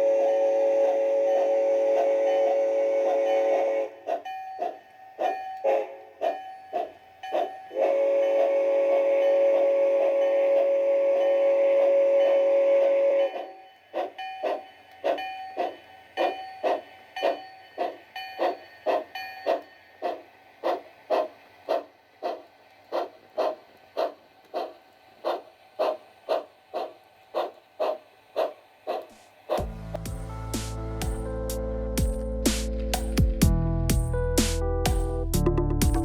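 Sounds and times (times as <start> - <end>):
steam exhaust chuffs: 0.0 - 4.2, 5.6 - 36.0
steam whistle: 0.0 - 4.2, 5.6 - 6.2, 7.3 - 13.8.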